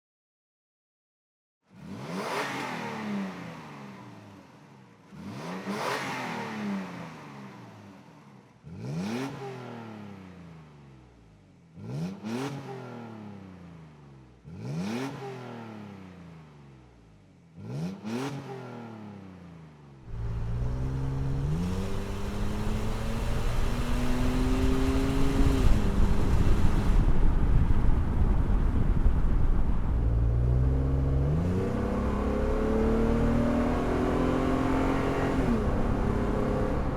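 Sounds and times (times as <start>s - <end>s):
truck driving and accelerating: 20.0s - 36.9s
truck engine revving: 20.1s - 27.0s
wind and road noise: 20.1s - 36.9s.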